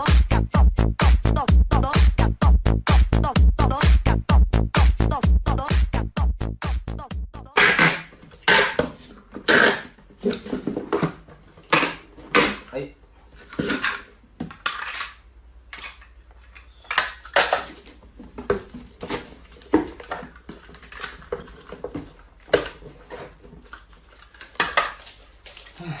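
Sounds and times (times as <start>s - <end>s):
hard objects clinking and clattering: 13.4s - 25.7s.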